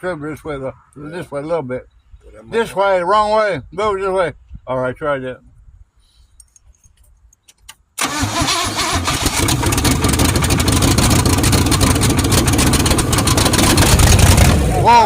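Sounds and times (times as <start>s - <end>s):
car engine running rough: 9.0s - 15.0s
crackling exhaust pulses: 9.6s - 14.9s.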